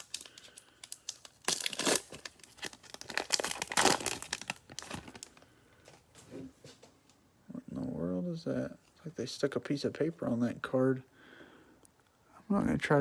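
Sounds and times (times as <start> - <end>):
cellophane wrapper crinkling and tearing: 0.0 - 5.5.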